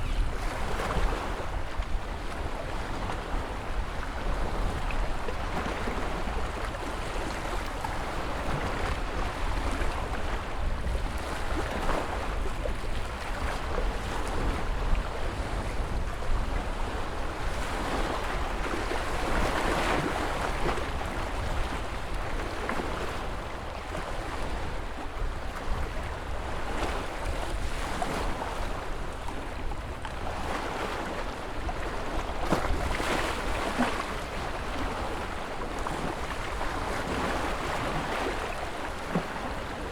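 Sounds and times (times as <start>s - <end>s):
ocean waves breaking: 25.5s - 39.9s.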